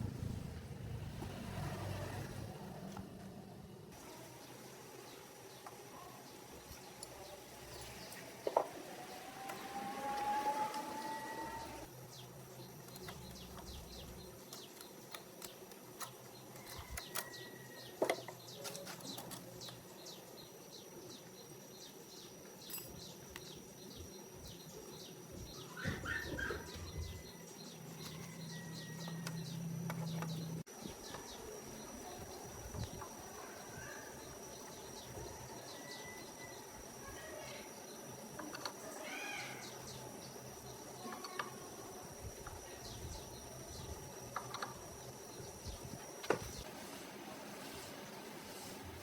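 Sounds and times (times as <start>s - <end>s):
high insect drone: 4.0s - 49.0s
birds chirping: 4.4s - 41.6s.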